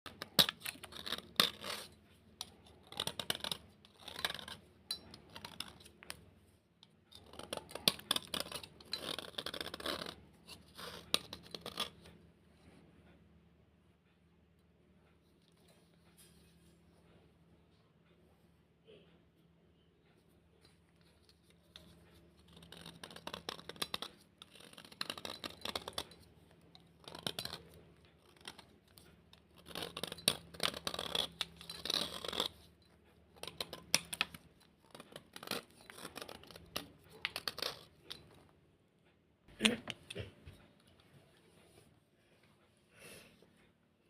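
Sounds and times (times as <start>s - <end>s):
gritty scraping of slate: 0.1s - 6.2s, 7.1s - 12.1s, 21.8s - 32.7s, 33.3s - 38.3s.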